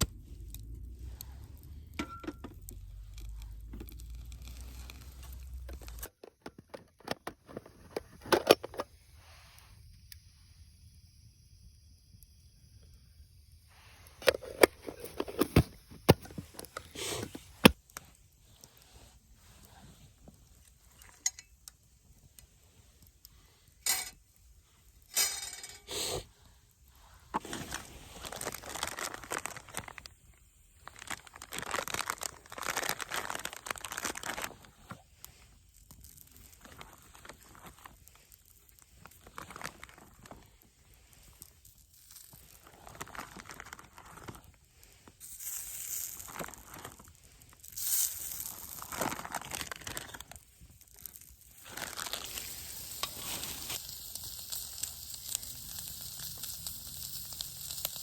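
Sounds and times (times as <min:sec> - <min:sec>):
packaging crinkling and tearing: 0:02.7 - 0:08.8, 0:27.4 - 0:30.1, 0:30.8 - 0:35.0, 0:35.7 - 0:58.0
food sizzling on griddle: 0:45.2 - 0:58.0.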